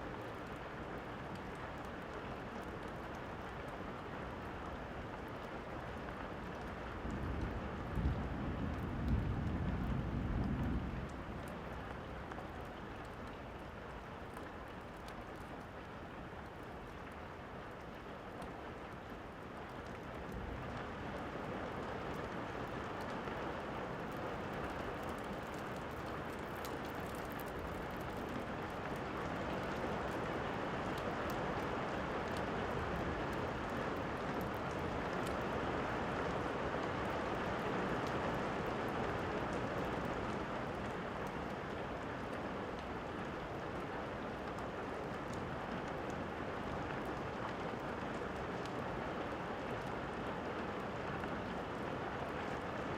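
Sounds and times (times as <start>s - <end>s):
steady rain falling: 0.0s - 52.9s
log fire crackling: 21.8s - 48.5s.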